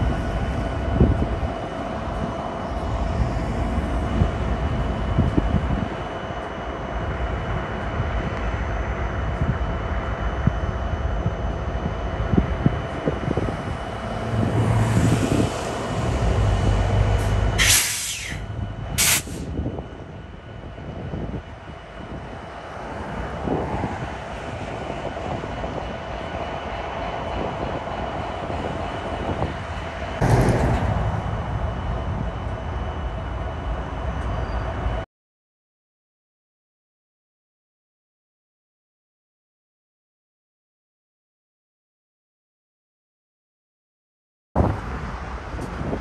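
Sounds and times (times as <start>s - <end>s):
locomotive engine rumble: 0.0s - 35.0s
wheel noise on rails: 0.0s - 35.0s, 44.6s - 46.0s
short high hisses: 17.6s - 18.4s, 19.0s - 19.5s.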